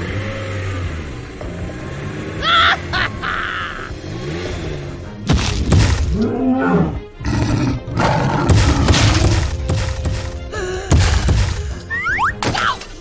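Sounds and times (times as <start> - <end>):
cartoon background music: 0.0 - 13.0
crashing impacts: 5.2 - 6.4, 8.4 - 13.0
beast roaring: 6.1 - 9.3.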